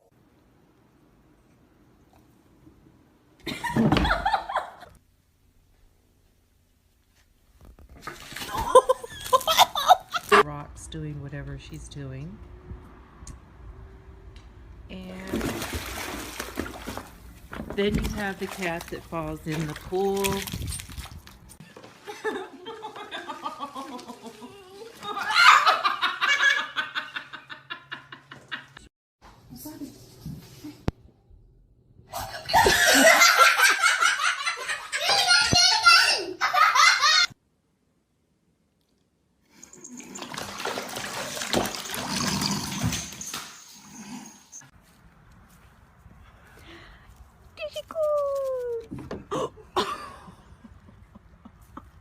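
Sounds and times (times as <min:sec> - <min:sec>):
person laughing hard: 0:08.5 - 0:10.4, 0:32.2 - 0:34.7, 0:49.2 - 0:52.0
water running and splashing: 0:15.1 - 0:25.2, 0:39.6 - 0:43.2.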